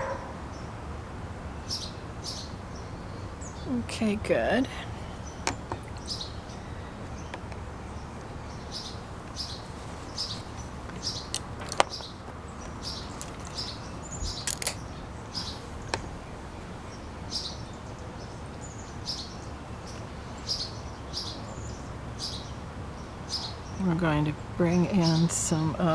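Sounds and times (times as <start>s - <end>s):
low background hum: 0.0s - 25.9s
small bird chirping: 5.2s - 16.2s
sharp clicks: 14.3s - 14.8s.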